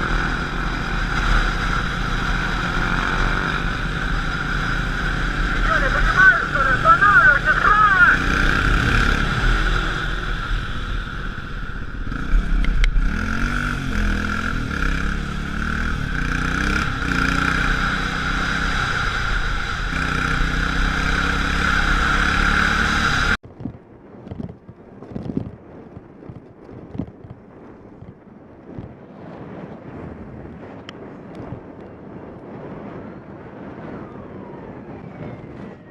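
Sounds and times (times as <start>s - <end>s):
vehicle engine running: 0.0s - 26.4s
road noise: 0.0s - 35.9s
wind noise on microphone: 23.2s - 35.9s.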